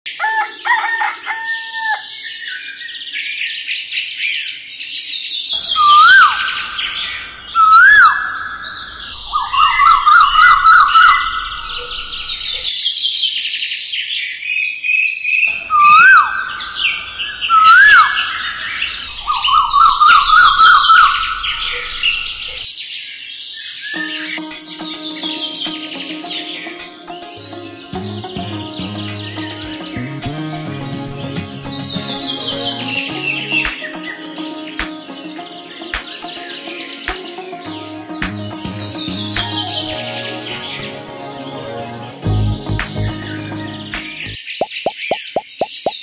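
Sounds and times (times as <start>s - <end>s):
songbirds chirping and trilling: 0.1s - 46.0s
music: 24.0s - 44.4s.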